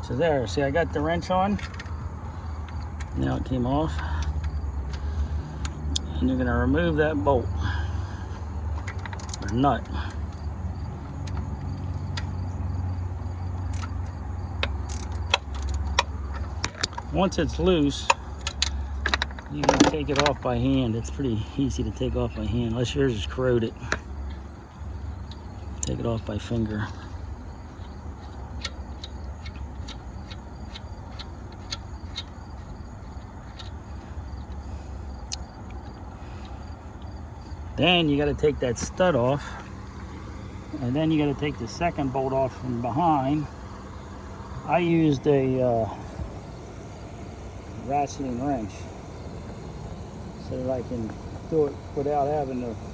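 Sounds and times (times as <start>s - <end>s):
steady low rumble: 0.0s - 52.9s
nut turning clicks: 1.5s - 6.2s, 8.3s - 40.3s
wrench clicks and taps: 8.8s - 9.5s, 13.6s - 17.2s, 17.9s - 20.4s, 27.7s - 33.8s.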